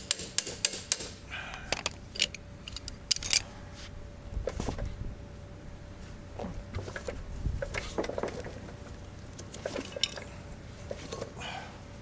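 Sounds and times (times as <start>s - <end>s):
metal tools clinking: 9.6s - 10.3s.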